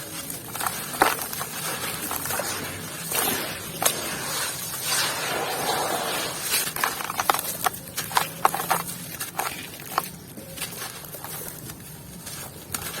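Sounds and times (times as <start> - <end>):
crumbs falling hiss: 0.0 - 8.7.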